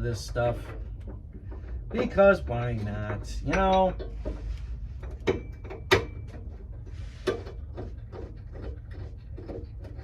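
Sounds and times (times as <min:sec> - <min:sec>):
tools clinking and scraping: 0:00.3 - 0:08.0.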